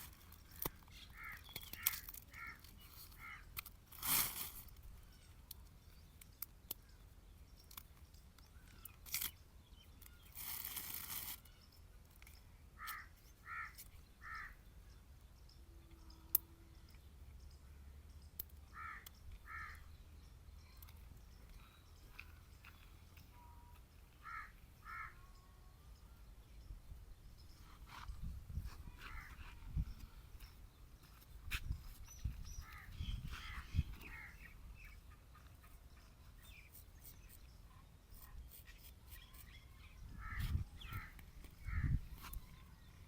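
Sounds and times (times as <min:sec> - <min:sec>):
crow cawing: 0:12.8 - 0:14.6, 0:18.7 - 0:19.8, 0:24.2 - 0:25.2.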